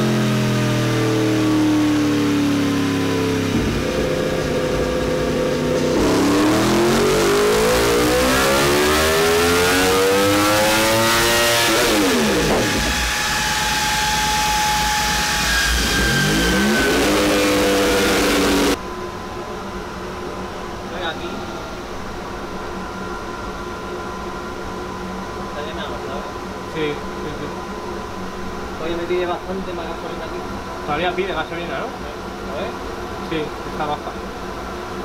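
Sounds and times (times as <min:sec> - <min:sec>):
motorcycle engine revving: 0:00.0 - 0:18.8.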